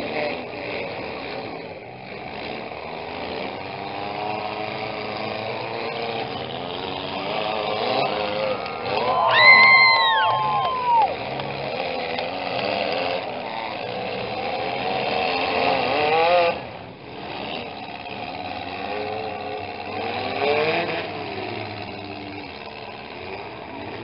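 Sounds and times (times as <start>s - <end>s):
small car engines revving: 0.0s - 24.0s.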